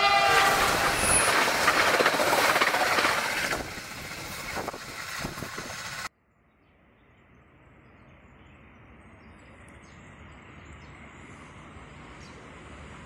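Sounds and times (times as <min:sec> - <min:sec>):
train horn blast: 0:00.0 - 0:01.4
train wheels clattering over rails: 0:00.0 - 0:06.1.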